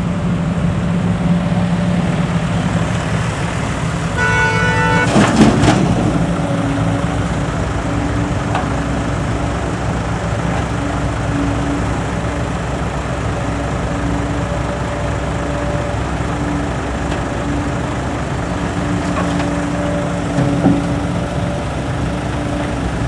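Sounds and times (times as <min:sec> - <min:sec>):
truck engine running: 0:00.0 - 0:23.0
vehicle horn: 0:04.1 - 0:05.6.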